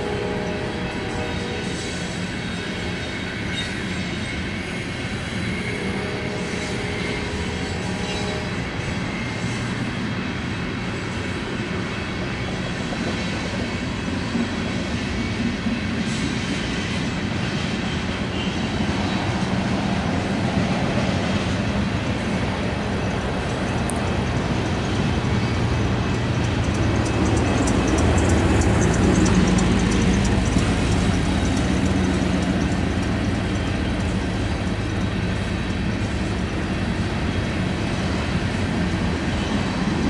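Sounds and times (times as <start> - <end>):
rail joint clicks: 0.0 - 40.0
train wheels rumbling on rails: 0.0 - 40.0
wheel squeal: 1.1 - 9.7, 24.9 - 34.0.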